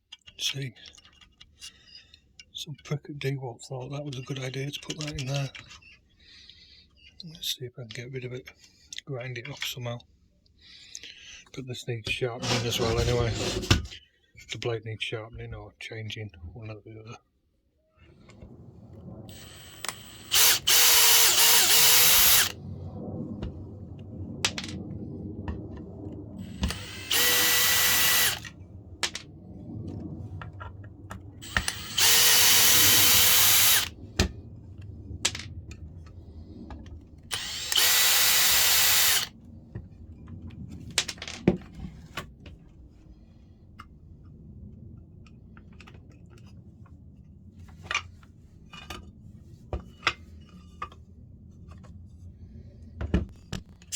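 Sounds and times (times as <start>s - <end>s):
power tool motor whining: 12.4s - 13.7s, 19.3s - 22.6s, 26.4s - 28.5s, 31.4s - 33.9s, 37.3s - 39.3s.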